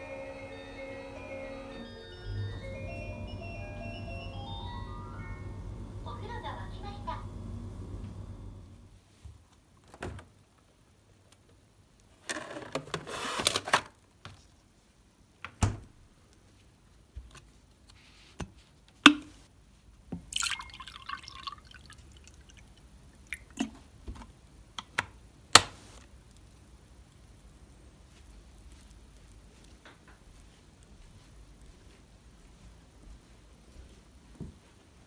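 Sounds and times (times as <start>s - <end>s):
water pouring: 20.2s - 23.9s
water dripping: 20.2s - 24.0s.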